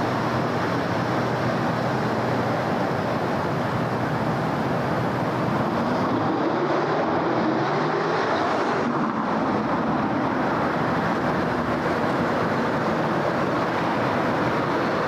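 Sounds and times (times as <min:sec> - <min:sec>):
city road traffic: 0:00.0 - 0:15.0
vehicle engine passing: 0:05.9 - 0:10.6.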